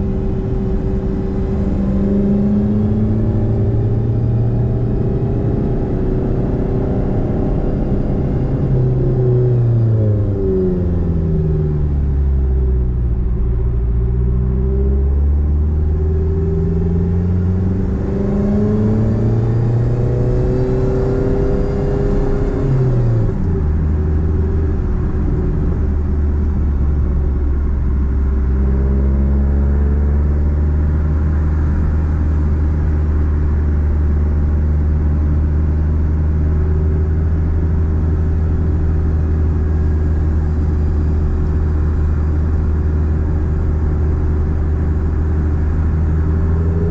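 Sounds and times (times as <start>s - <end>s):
car engine accelerating: 0.0s - 46.9s.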